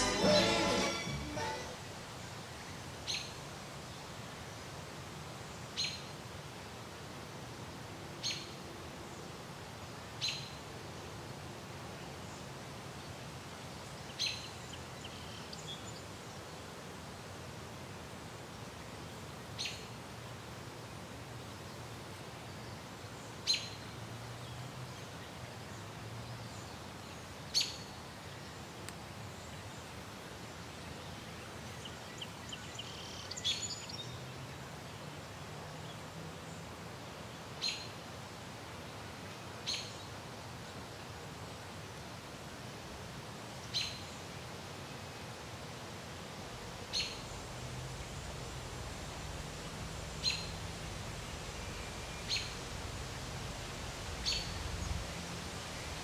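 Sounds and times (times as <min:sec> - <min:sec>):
outdoor background hiss: 0:00.0 - 0:56.0
bird chirping: 0:46.9 - 0:47.3, 0:50.1 - 0:50.6, 0:51.2 - 0:52.7, 0:54.2 - 0:55.0.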